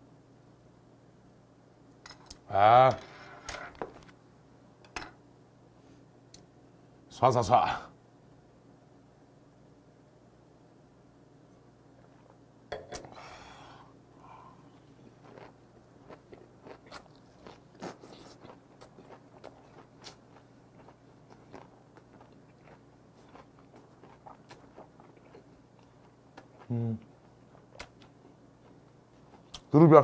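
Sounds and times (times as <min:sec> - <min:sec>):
loud breathy burst: 0:13.1 - 0:14.6
person chewing crunchily: 0:14.6 - 0:29.7.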